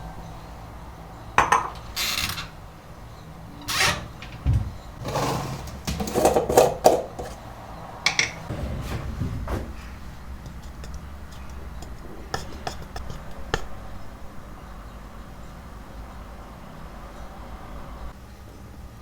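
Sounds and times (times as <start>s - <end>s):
kitchenware clinking and knocking: 1.4s - 2.0s, 3.8s - 7.4s, 8.1s - 13.8s
kitchenware scraping: 1.4s - 2.6s, 3.6s - 14.1s.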